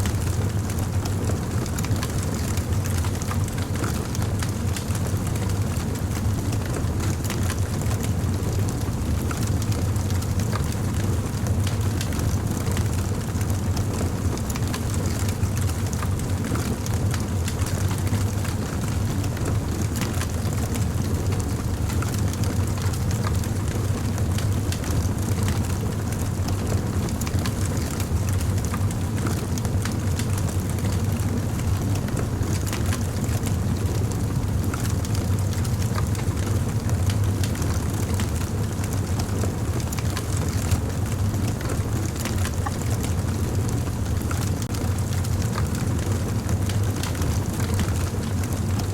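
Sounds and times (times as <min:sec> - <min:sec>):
fire crackling: 0:25.5 - 0:48.9.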